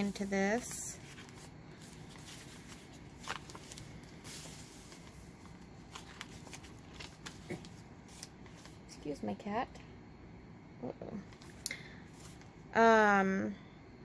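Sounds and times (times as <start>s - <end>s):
paper and card rustling: 0.0s - 8.8s.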